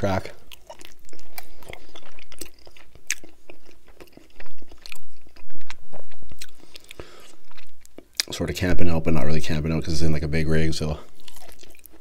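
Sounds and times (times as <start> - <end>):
person chewing meat: 0.3 - 8.3, 11.0 - 12.0
mouth clicks and smacks: 0.5 - 8.3.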